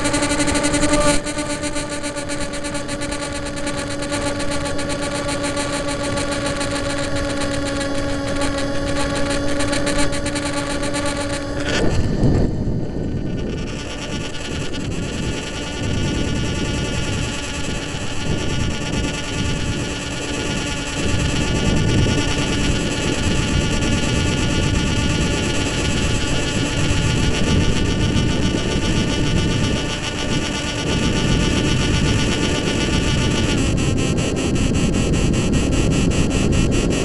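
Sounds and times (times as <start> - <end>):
model airplane motor whine: 0.0 - 37.0
wind noise on microphone: 0.0 - 37.0.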